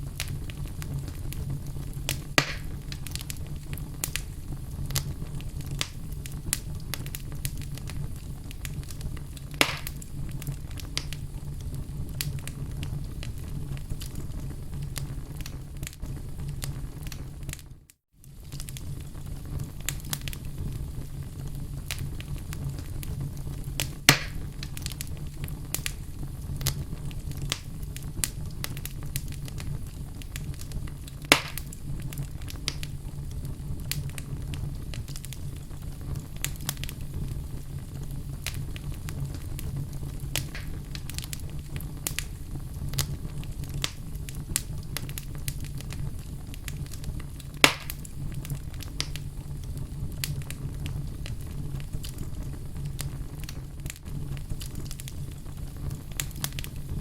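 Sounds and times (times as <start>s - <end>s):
loud fire pops: 0.0s - 57.0s
low fire rumble: 0.0s - 57.0s
wood fire crackling: 0.0s - 57.0s.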